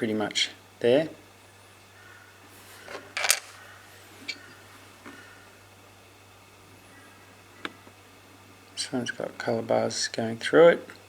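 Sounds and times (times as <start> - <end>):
faint steady hum: 0.0 - 11.0
stones rustling: 2.7 - 3.7
stones clicking: 2.9 - 3.6.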